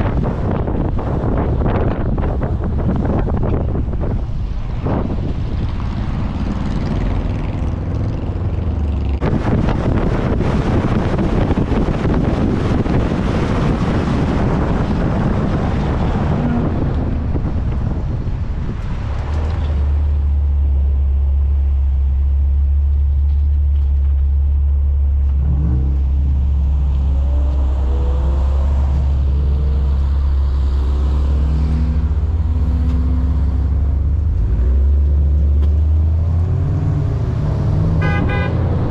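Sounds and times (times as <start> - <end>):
gusty wind noise: 0.0 - 20.8, 25.3 - 38.9
vehicle rumble: 0.0 - 38.9
rising and falling engine tones: 4.0 - 10.0, 25.2 - 38.9.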